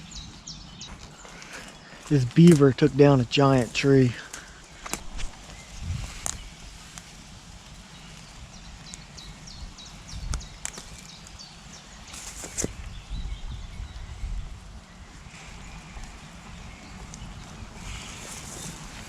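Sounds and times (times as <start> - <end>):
footsteps outdoors: 0.0 - 19.0
low rumble: 4.8 - 7.0.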